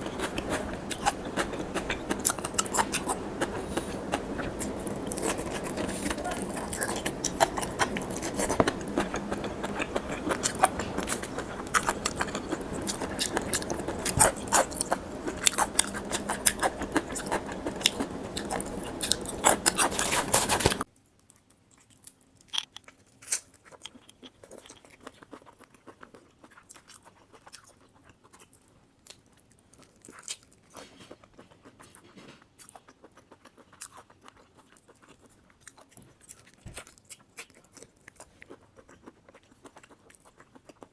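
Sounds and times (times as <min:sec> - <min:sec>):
steady background hiss: 0:00.0 - 0:21.2
chewing raw shrimp: 0:00.0 - 0:40.9.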